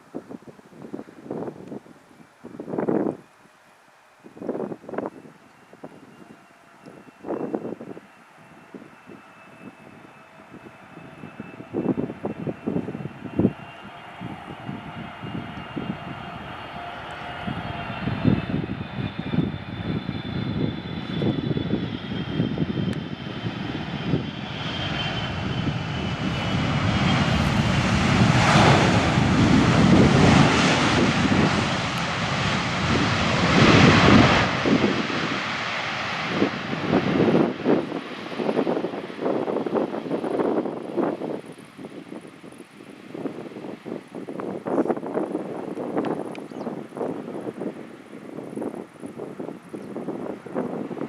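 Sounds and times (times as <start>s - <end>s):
jet airliner engines flying past: 0.0s - 51.0s.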